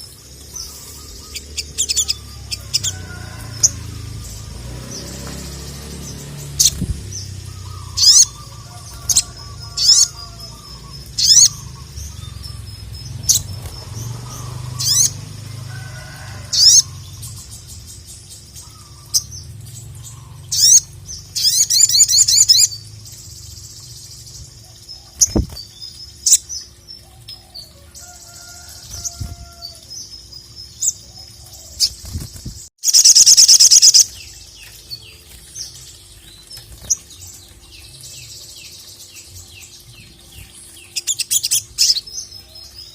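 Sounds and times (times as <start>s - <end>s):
bird trilling: 6.5s - 12.6s.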